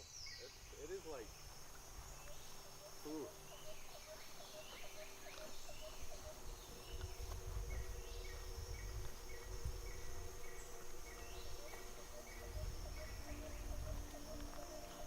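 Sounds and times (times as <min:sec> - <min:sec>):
high insect drone: 0:00.0 - 0:15.0
wind rumble on microphone: 0:05.7 - 0:15.0.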